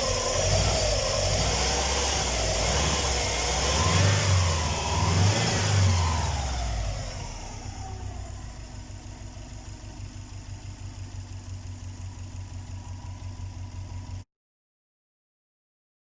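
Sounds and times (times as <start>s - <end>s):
car engine idling: 0.0s - 14.2s.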